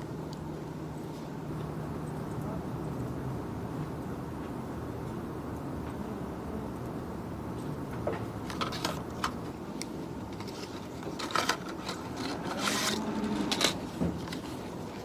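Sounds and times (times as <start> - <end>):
steady low hum: 0.0 - 15.0
rubbing and scraping on a desk: 10.3 - 14.8.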